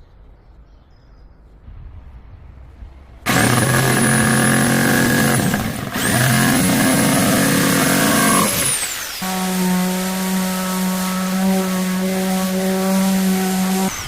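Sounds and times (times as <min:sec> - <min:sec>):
power tool motor whining: 0:03.3 - 0:14.0.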